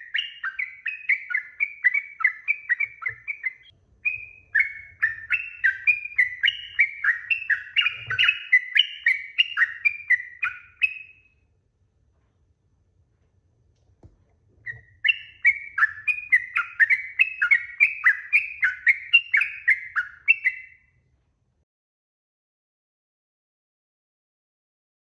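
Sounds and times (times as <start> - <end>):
bulbul singing bubbly chirps: 0.0 - 11.2, 14.7 - 20.7.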